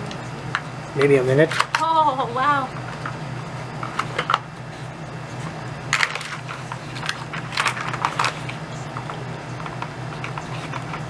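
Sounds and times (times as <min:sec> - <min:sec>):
steady low hum: 0:00.0 - 0:11.0
hard plastic clacking: 0:05.4 - 0:11.0.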